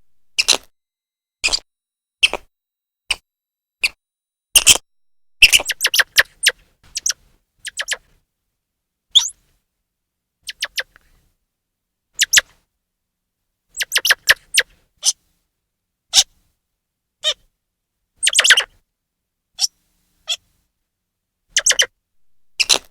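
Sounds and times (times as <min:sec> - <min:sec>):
squirrel chirping: 0:05.4 - 0:08.0, 0:18.2 - 0:18.7, 0:21.6 - 0:21.9, 0:22.5 - 0:22.9.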